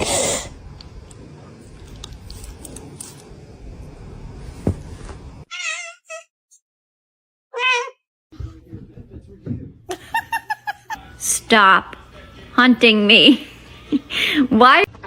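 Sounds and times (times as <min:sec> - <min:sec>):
cat meowing: 0:05.5 - 0:06.3, 0:07.5 - 0:08.0.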